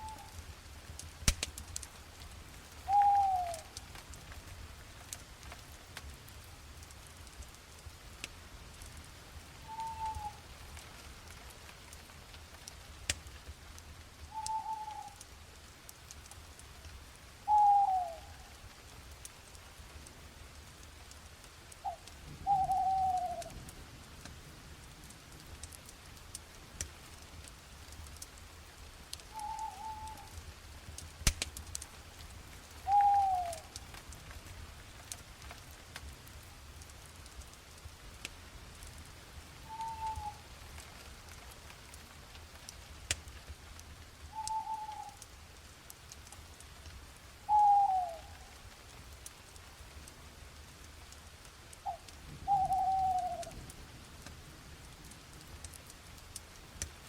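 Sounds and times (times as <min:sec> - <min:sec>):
campfire crackling: 0:00.0 - 0:57.0
bird calling: 0:02.9 - 0:03.7, 0:09.7 - 0:10.4, 0:14.3 - 0:15.2, 0:17.5 - 0:18.3, 0:21.8 - 0:23.5, 0:29.3 - 0:30.3, 0:32.9 - 0:33.8, 0:39.7 - 0:40.4, 0:44.4 - 0:45.2, 0:47.5 - 0:48.5, 0:51.8 - 0:53.5.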